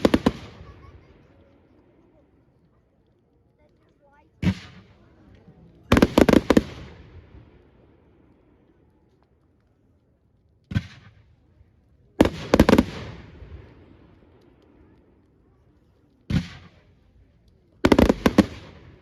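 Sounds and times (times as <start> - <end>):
fireworks bangs echoing: 0.0 - 1.2, 4.4 - 5.3, 5.9 - 8.2, 10.7 - 11.4, 12.2 - 14.4, 16.3 - 16.9, 17.8 - 19.0.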